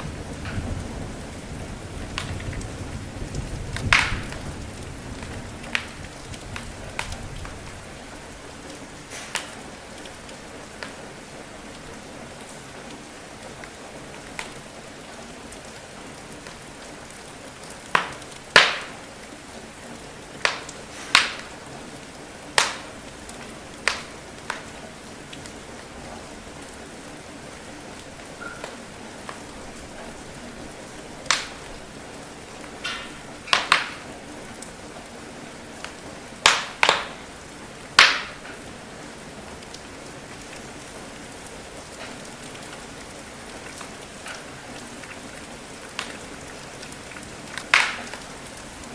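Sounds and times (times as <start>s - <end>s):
burning logs popping: 0.0s - 7.8s, 8.6s - 11.0s, 14.3s - 14.6s, 17.7s - 19.0s, 20.4s - 21.7s, 22.5s - 25.6s, 31.2s - 31.8s, 32.6s - 34.6s, 35.8s - 37.3s, 38.0s - 38.7s, 41.8s - 42.9s, 43.6s - 45.2s, 45.9s - 48.5s
rain hiss: 0.0s - 48.9s
wood fire crackling: 0.0s - 48.9s.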